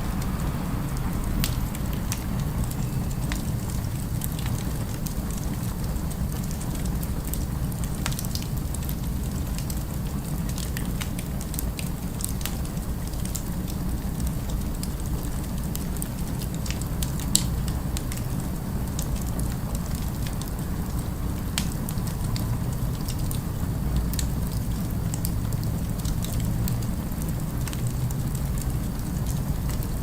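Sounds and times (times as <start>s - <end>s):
low rumble of city ambience: 0.0s - 30.0s
wood fire crackling: 0.0s - 30.0s.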